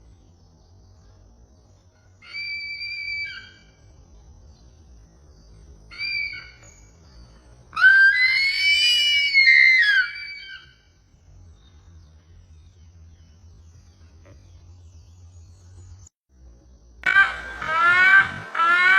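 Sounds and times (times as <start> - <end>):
bird calling: 1.8 - 3.9, 5.5 - 10.9, 17.0 - 18.9.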